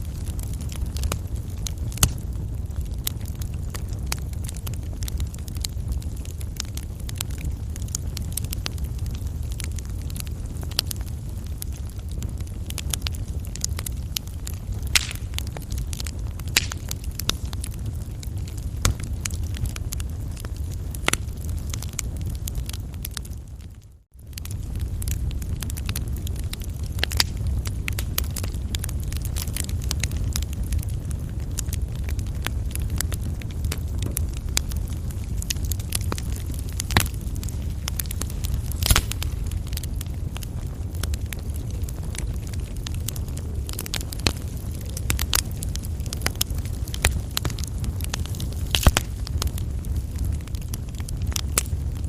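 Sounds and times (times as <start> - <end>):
coal fire crackling and popping: 0.0 - 52.0.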